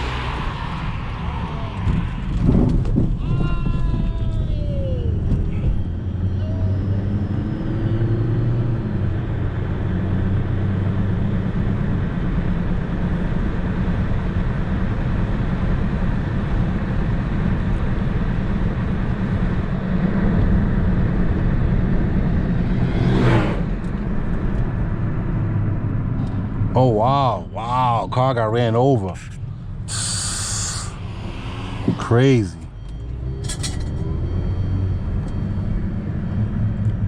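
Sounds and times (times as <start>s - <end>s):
road and traffic noise: 0.0s - 37.0s
heavy vehicle engine running: 29.2s - 37.0s.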